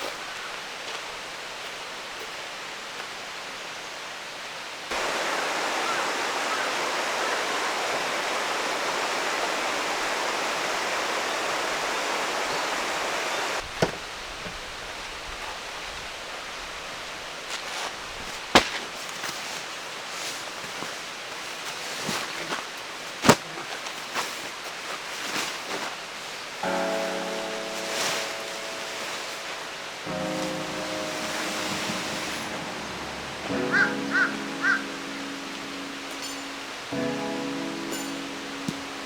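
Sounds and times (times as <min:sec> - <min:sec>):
stream rushing: 0:04.7 - 0:14.0, 0:26.4 - 0:39.0.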